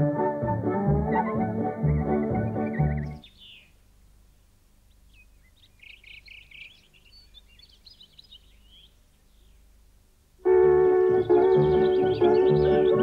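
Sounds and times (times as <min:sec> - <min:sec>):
high bird chirps: 0:01.9 - 0:03.8, 0:04.9 - 0:09.6, 0:11.1 - 0:13.0.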